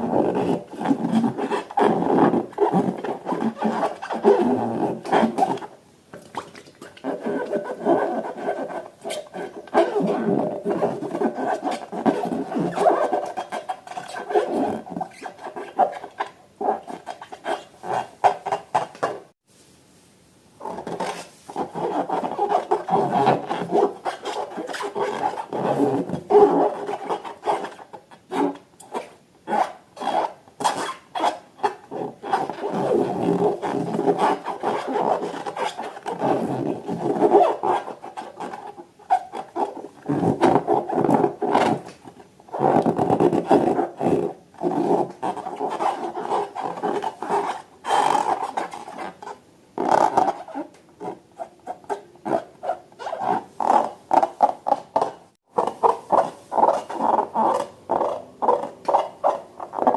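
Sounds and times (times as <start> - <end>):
hands rubbing balloons and slime: 20.6 - 28.0.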